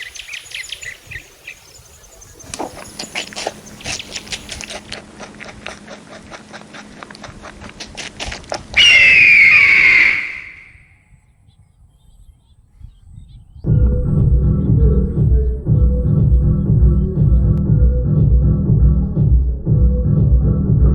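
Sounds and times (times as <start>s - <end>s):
animal cry falling in pitch: 8.8s - 10.9s.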